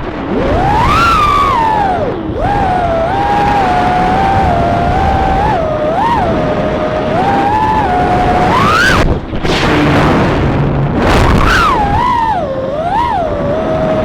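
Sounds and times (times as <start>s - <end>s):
quadcopter motors whining: 0.3s - 9.4s, 11.2s - 14.0s.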